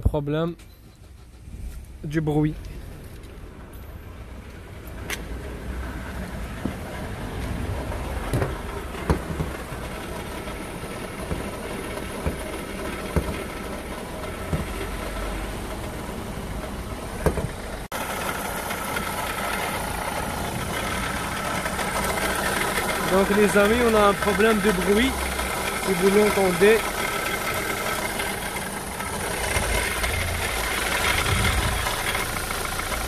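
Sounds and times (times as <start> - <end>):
diesel engine idling: 0.0 - 33.0
short sharp engine knocks: 11.2 - 13.6.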